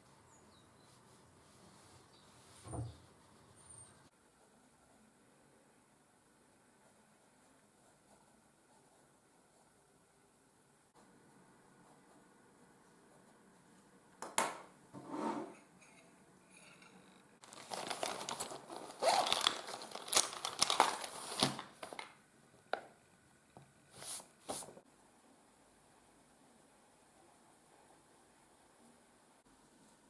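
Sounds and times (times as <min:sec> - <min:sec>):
crinkling and crumpling by hand: 0:17.4 - 0:22.9.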